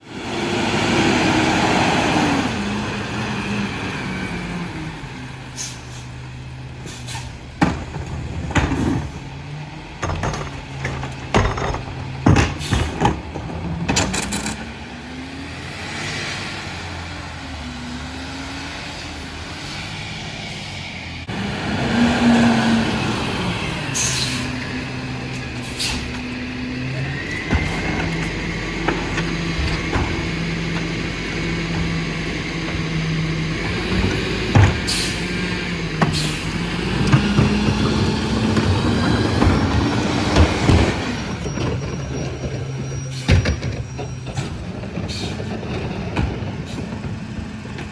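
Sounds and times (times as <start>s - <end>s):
diesel engine running: 0.0s - 47.9s
bangs and clatters: 7.6s - 14.9s.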